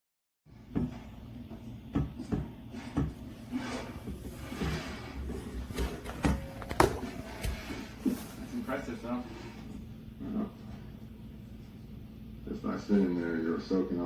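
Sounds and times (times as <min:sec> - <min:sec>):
handling noise: 0:03.1 - 0:09.0.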